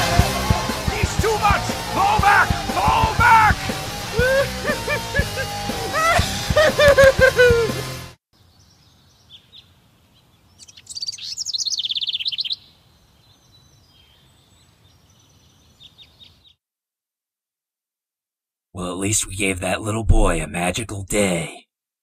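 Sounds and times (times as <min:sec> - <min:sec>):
music: 0:00.0 - 0:08.2
faint outdoor ambience: 0:06.7 - 0:16.4
songbirds chirping: 0:08.4 - 0:16.6.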